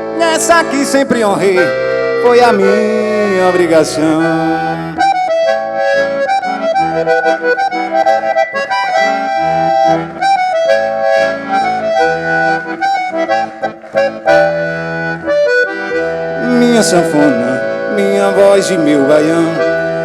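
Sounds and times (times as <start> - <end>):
accordion melody: 0.0 - 20.0
pulsing bass notes: 2.6 - 13.4.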